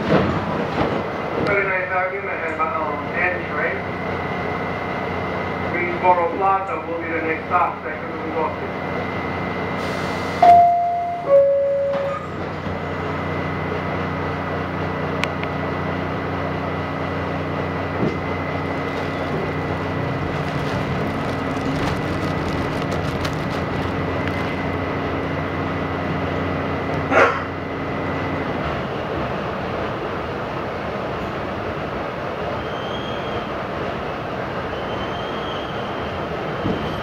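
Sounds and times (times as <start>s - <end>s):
wheels rumbling on rail: 0.0s - 37.0s
two-tone door chime: 10.4s - 12.3s
traction motor hum: 15.1s - 27.1s.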